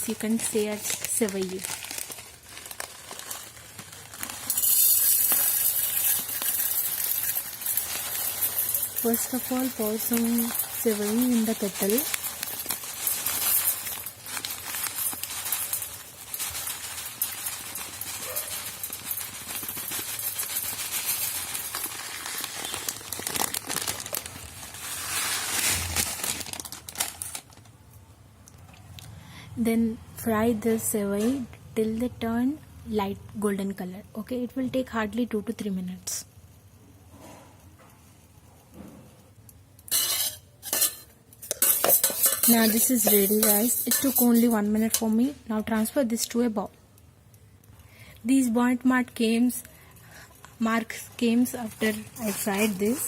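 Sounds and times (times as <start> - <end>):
dry noodles rustling in pot: 0.0 - 27.8, 39.9 - 45.4, 49.2 - 53.0.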